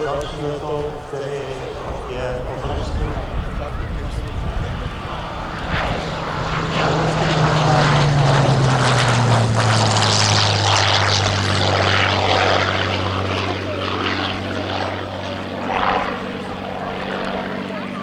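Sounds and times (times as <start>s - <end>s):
aircraft engine droning past: 0.0s - 18.0s.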